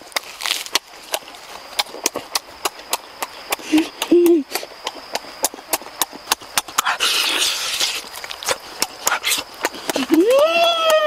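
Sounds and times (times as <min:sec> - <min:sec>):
wet lip-smacking and chewing: 0:01.2 - 0:10.2
crunching or slurping: 0:06.8 - 0:10.2.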